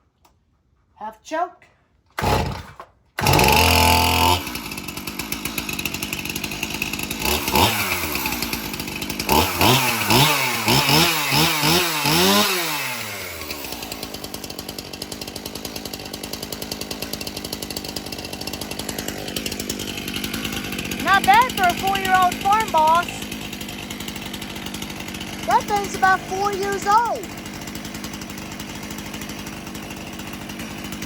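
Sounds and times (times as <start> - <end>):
chainsaw starting and revving: 2.1 - 31.0.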